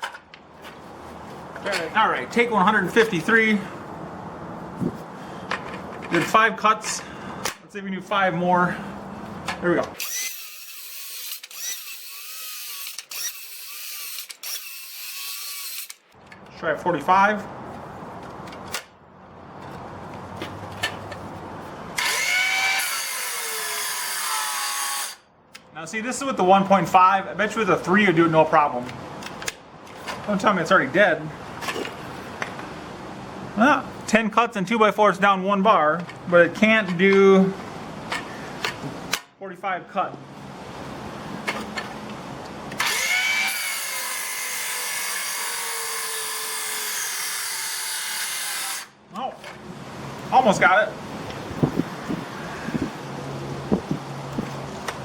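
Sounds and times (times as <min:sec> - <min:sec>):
circular saw cutting wood: 0:10.0 - 0:16.0, 0:22.0 - 0:25.2, 0:42.8 - 0:49.0.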